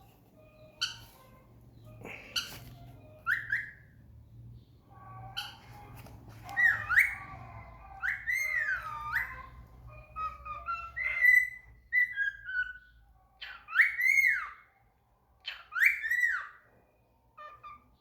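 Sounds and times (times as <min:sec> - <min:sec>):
bird whistling: 0:02.0 - 0:03.9, 0:08.0 - 0:14.6.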